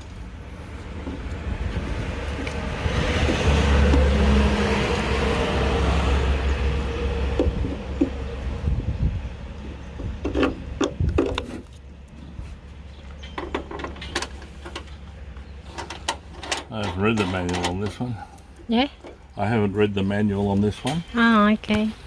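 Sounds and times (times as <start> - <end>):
sharp clicks and knocks: 7.3 - 8.3, 9.6 - 11.8, 13.1 - 15.1, 15.7 - 18.0.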